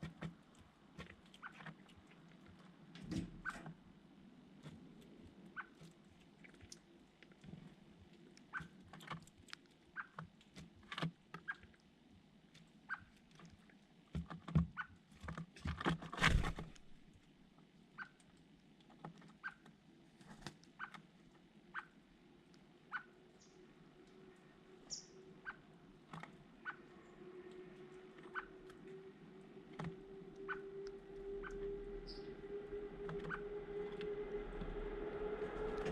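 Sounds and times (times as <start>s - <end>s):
birds pecking and scratching: 0.0s - 35.9s
soft bird chirps: 22.9s - 25.9s, 26.6s - 34.6s.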